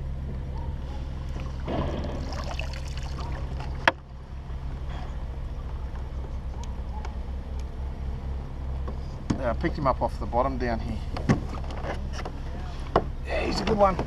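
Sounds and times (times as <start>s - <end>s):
steady low hum: 0.0s - 14.0s
water splashing and dripping: 1.3s - 3.8s.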